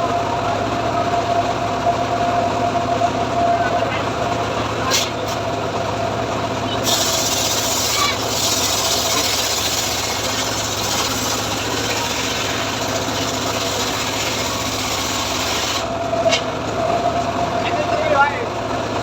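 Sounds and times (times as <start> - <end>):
engine running: 0.0 - 19.0
saw blade rasping through log: 6.8 - 16.5.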